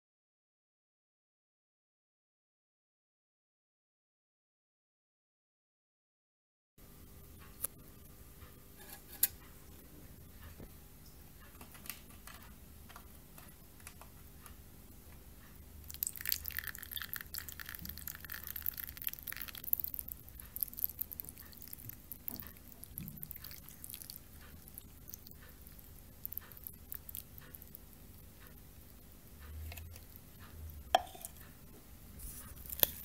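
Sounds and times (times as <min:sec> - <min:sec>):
litter granules crackling: 0:15.9 - 0:27.9.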